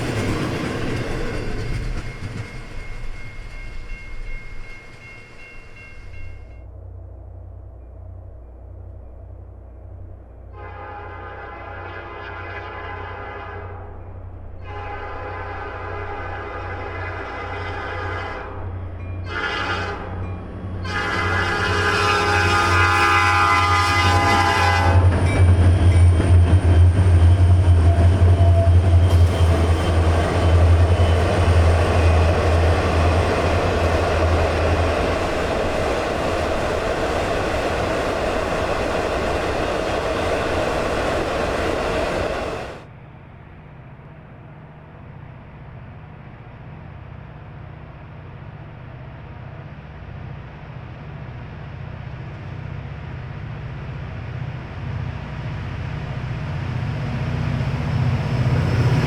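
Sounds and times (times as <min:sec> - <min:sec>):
train cars rolling: 0:00.0 - 0:06.6, 0:16.0 - 0:42.9
diesel locomotive engines droning: 0:00.0 - 0:59.0.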